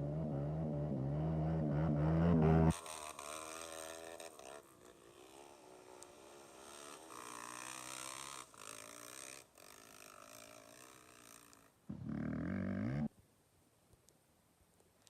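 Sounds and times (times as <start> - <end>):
motorcycle engines revving: 0.0 - 13.1.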